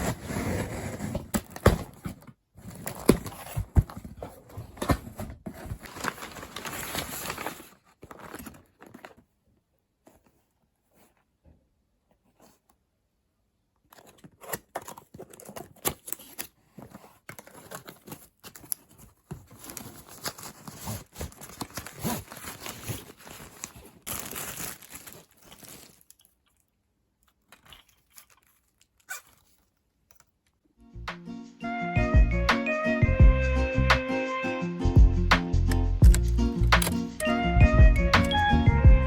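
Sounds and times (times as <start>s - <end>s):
rustling and crinkling: 0.0s - 12.9s, 13.8s - 30.7s.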